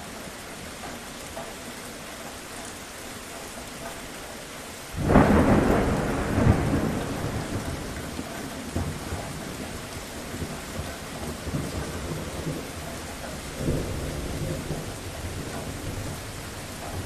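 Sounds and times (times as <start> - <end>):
steady rain falling: 0.0 - 17.0
thunder clap and rumble: 5.0 - 17.0.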